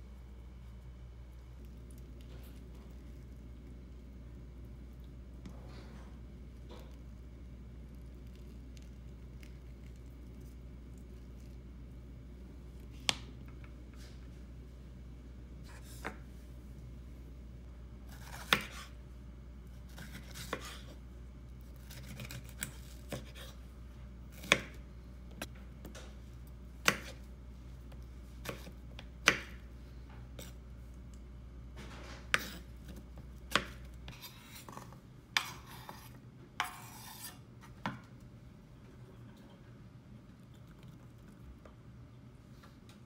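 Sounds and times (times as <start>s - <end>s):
low steady hum: 0.0s - 43.0s
knife cutting on chopping board: 18.1s - 18.9s, 19.9s - 20.9s, 21.8s - 23.6s, 32.3s - 34.8s, 35.4s - 37.4s
knife scraping board: 19.9s - 20.9s, 21.9s - 23.6s, 32.3s - 32.7s, 33.6s - 37.4s.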